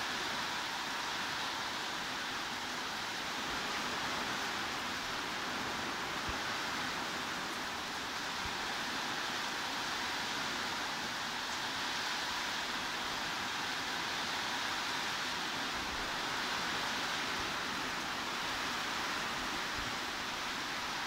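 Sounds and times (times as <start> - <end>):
heavy rain hissing: 0.0 - 21.0.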